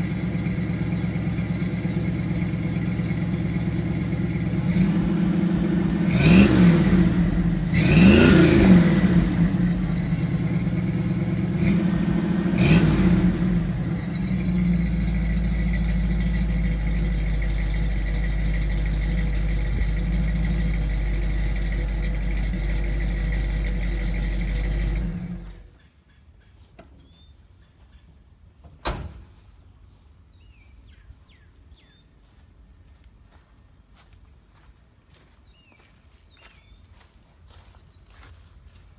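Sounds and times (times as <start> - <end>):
truck engine revving and idling: 0.0 - 25.7.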